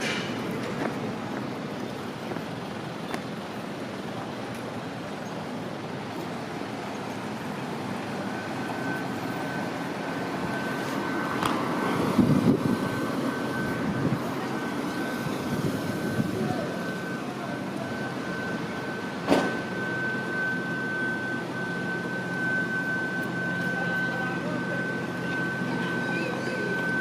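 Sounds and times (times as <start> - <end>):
passing vehicles rumbling: 0.0 - 27.0
high electronic tone: 7.2 - 27.0.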